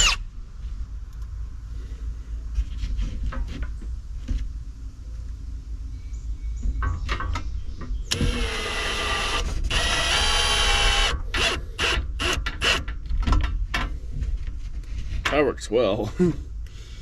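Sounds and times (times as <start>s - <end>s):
cordless drill driving a screw: 0.0s - 0.2s, 8.1s - 12.8s.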